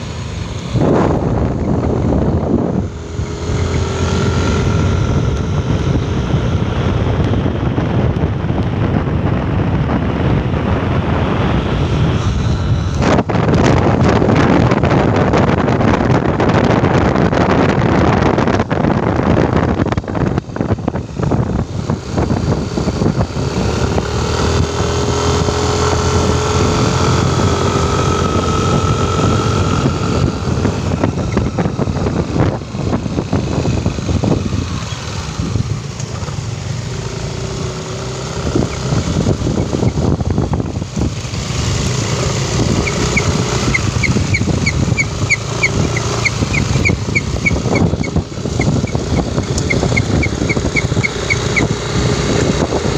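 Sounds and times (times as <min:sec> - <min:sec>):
road and wind noise: 0:00.0 - 0:52.9
vehicle engine running: 0:00.0 - 0:52.9
high-pitched ticks: 0:48.8 - 0:51.4.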